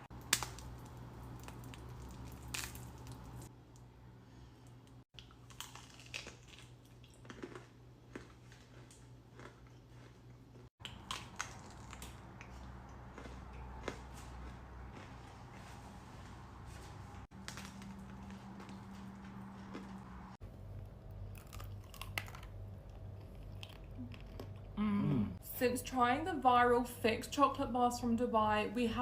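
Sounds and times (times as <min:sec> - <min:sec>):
low room hum: 0:00.0 - 0:29.0
chocolate crunching and chewing: 0:00.1 - 0:03.5, 0:05.2 - 0:15.3, 0:17.4 - 0:24.8.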